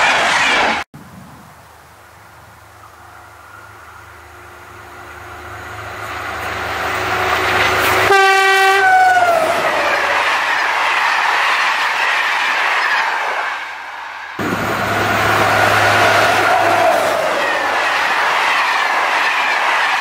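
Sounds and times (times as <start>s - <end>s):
train rushing past: 0.0s - 0.8s, 2.5s - 20.0s
locomotive horn blast: 7.1s - 9.8s.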